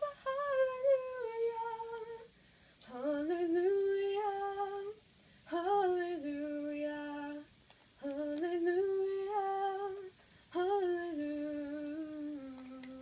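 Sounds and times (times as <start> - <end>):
woman singing unaccompanied: 0.0 - 13.0.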